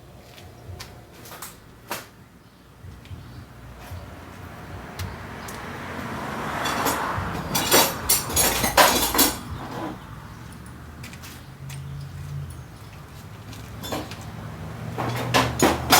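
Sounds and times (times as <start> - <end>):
sharp metallic clanks: 6.6 - 10.7, 15.0 - 15.9
metal hand tools clinking and scraping: 6.6 - 15.9.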